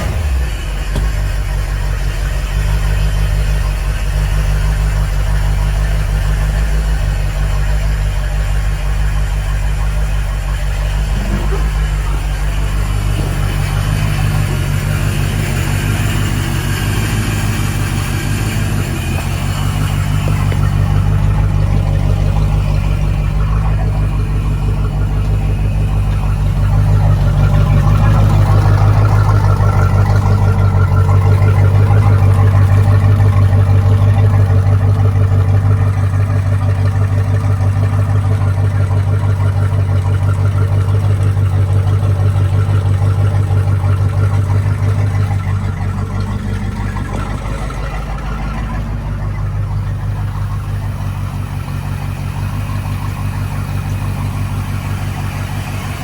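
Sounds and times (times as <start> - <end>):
boat engine idling: 0.0 - 56.0.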